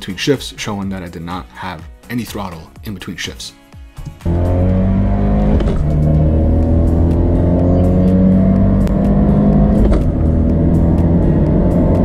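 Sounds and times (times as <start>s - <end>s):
car engine at full throttle: 4.2s - 12.0s.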